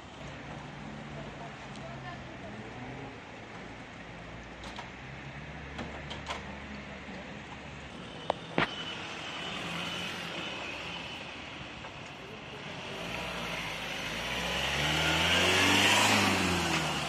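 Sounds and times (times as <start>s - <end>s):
motor vehicle running: 9.4s - 17.0s.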